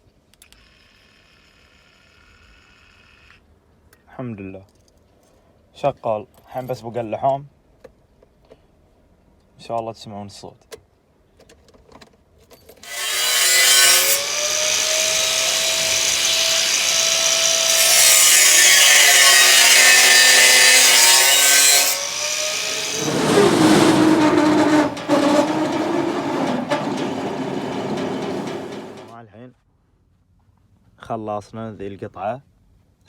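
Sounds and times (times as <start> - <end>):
power tool grinding metal pipe: 12.8 - 29.1.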